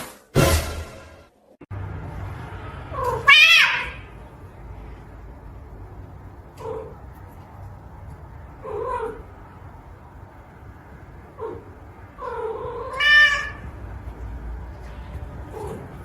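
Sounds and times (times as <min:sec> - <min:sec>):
cat meowing: 0:02.9 - 0:04.1, 0:11.4 - 0:13.6.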